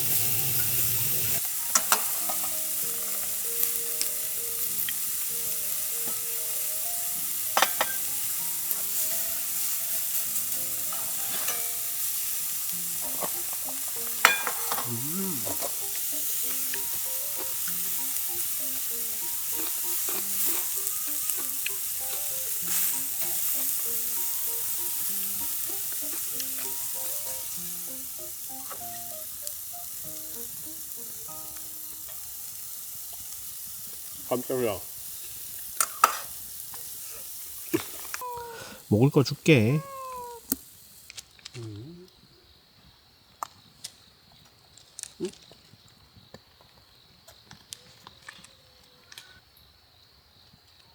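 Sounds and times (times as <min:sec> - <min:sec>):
steak sizzling in a grill pan: 0:00.0 - 0:41.2
utensil clicking against pan: 0:01.7 - 0:05.0, 0:15.5 - 0:27.6.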